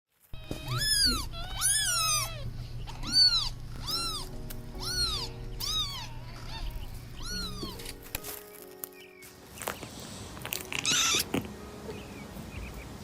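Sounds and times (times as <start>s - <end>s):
kittens meowing: 0.4s - 8.2s, 10.7s - 11.4s.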